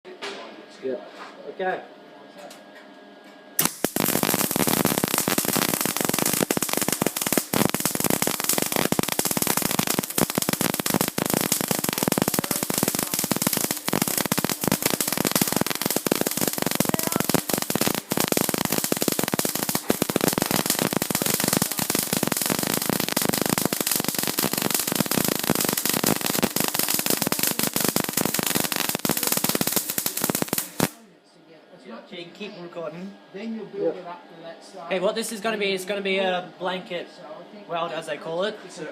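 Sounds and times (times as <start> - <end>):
welding arc crackling: 3.6 - 31.0.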